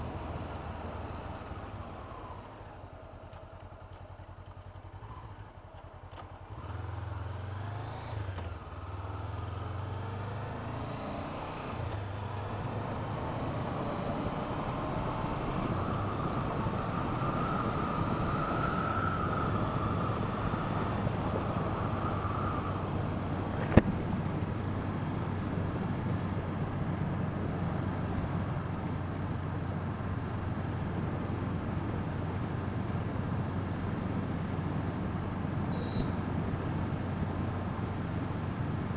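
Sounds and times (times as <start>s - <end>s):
motorcycle engine accelerating: 0.0s - 26.4s
wind rushing on helmet: 13.4s - 26.4s.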